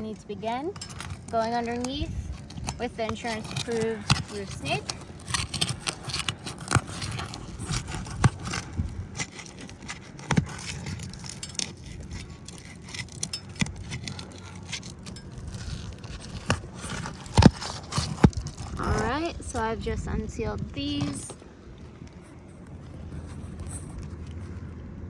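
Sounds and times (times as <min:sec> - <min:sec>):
roof shingles scraping and crackling: 0:00.5 - 0:24.7
shingles snapping: 0:00.8 - 0:19.0.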